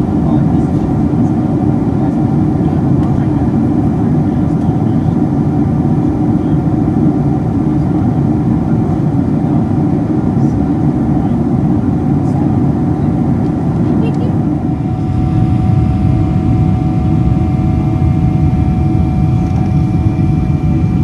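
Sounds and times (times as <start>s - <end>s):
airplane engines roaring in cabin: 0.0s - 21.0s
faint steady tones: 14.1s - 21.0s.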